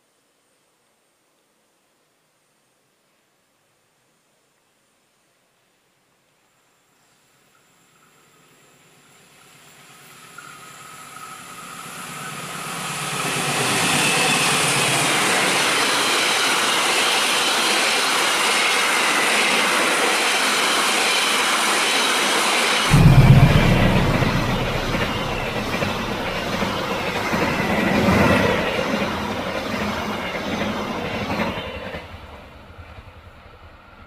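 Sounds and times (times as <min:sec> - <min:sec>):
train wheels rolling on rails: 0:10.0 - 0:34.0
deep train rumble: 0:22.9 - 0:30.4.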